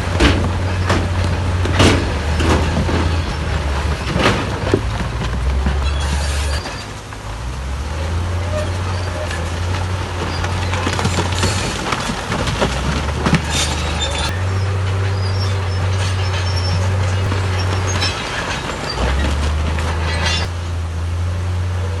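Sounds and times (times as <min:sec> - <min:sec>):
metallic clanks and squeaks: 0:00.0 - 0:07.1, 0:08.0 - 0:20.6
diesel machinery engine droning: 0:00.0 - 0:22.0.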